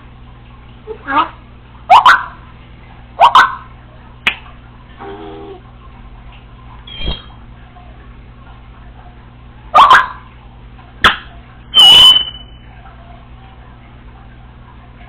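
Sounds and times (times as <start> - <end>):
parrot mimicking dog bark: 1.0 - 2.4, 3.2 - 3.7, 9.8 - 10.2
parrot squawk: 1.9 - 2.4, 3.2 - 3.7, 9.8 - 10.2, 11.8 - 12.4
high whistled note: 11.7 - 12.6.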